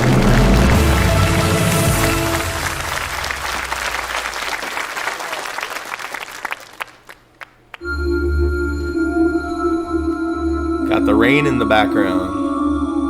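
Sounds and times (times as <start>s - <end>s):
studio audience applauding: 0.0s - 7.9s.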